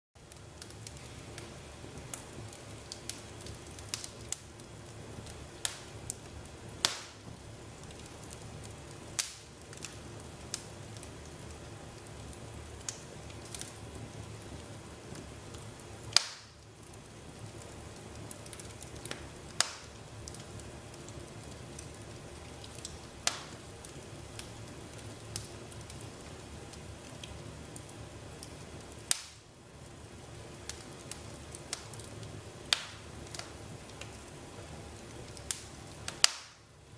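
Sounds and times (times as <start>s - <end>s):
low hiss of fire: 0.2s - 36.9s
wood fire crackling: 0.2s - 36.9s
sharp pops of fire: 0.3s - 29.5s, 30.7s - 34.3s, 35.1s - 36.7s.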